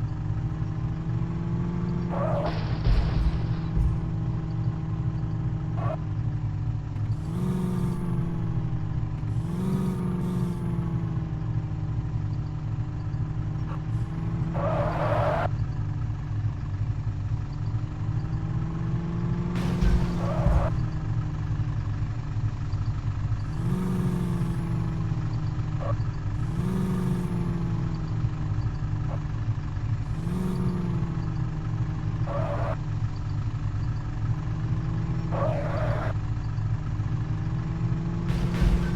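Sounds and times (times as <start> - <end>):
truck engine revving: 0.0 - 15.6, 17.7 - 38.9.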